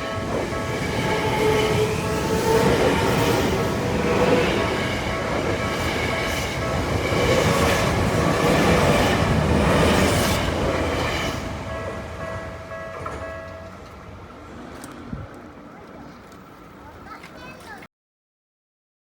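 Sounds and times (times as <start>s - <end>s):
crossing warning bell ringing: 0.0s - 14.9s
electric train passing: 0.0s - 17.2s.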